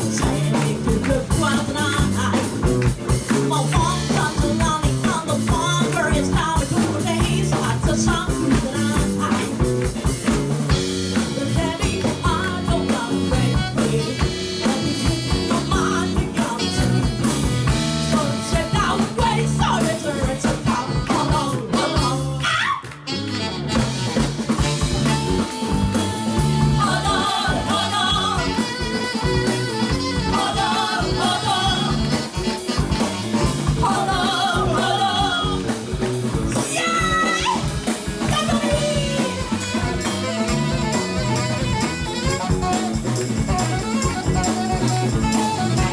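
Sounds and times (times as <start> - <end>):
rock band playing: 0.0 - 45.9
lead instrument melody: 28.4 - 33.7, 38.6 - 45.9.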